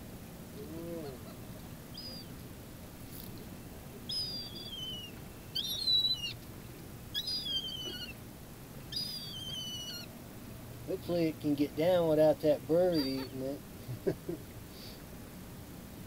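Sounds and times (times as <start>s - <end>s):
bird whistled calls: 1.9s - 2.3s, 4.1s - 6.4s, 7.1s - 8.2s, 8.9s - 10.1s.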